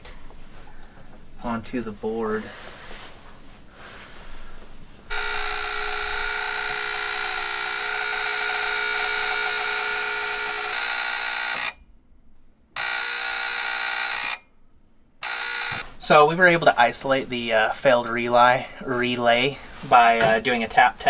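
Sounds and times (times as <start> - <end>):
loud electrical buzzing: 5.1 - 11.9, 12.8 - 14.4, 15.2 - 16.2.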